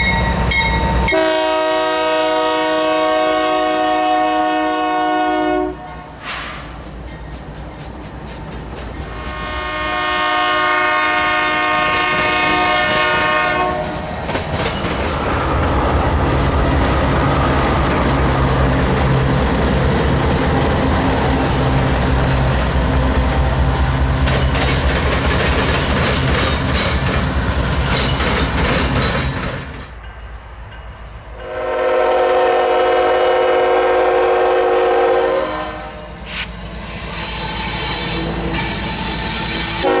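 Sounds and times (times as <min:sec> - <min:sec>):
locomotive air horn: 0:01.1 - 0:06.2, 0:09.1 - 0:14.0, 0:31.4 - 0:36.2, 0:37.3 - 0:40.0
wheels clattering over rail joints: 0:13.9 - 0:15.9, 0:24.2 - 0:30.0.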